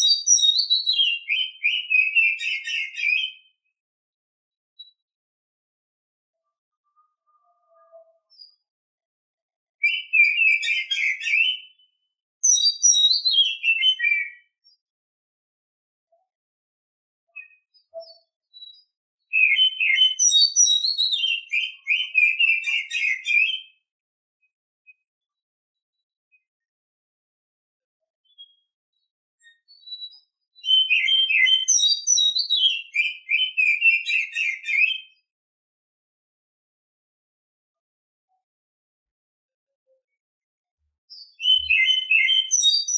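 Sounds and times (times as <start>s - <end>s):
bird chirping song: 0.0s - 3.8s, 4.7s - 5.1s, 6.4s - 8.8s, 9.8s - 14.9s, 17.3s - 26.8s, 28.0s - 35.3s, 39.9s - 42.9s.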